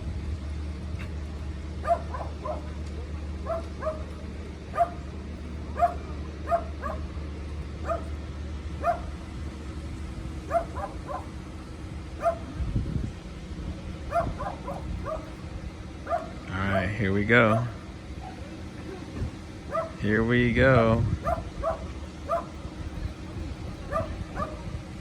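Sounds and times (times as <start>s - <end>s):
low engine hum: 0.0s - 25.0s
dog barking: 1.8s - 2.8s, 3.4s - 4.1s, 4.7s - 5.1s, 5.7s - 7.1s, 7.8s - 8.2s, 8.8s - 9.1s, 10.5s - 11.4s, 12.2s - 12.5s, 14.1s - 15.4s, 16.0s - 18.4s, 19.7s - 20.0s, 21.2s - 22.6s, 23.8s - 24.6s.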